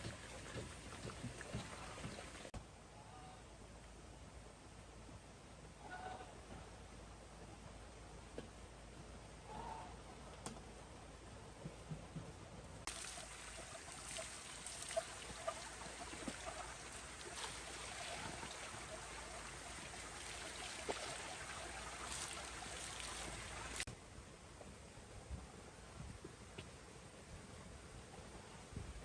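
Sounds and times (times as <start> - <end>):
small clicks and splashes: 0.0 - 2.5, 12.9 - 23.9
water pouring: 0.0 - 2.5, 12.9 - 23.9.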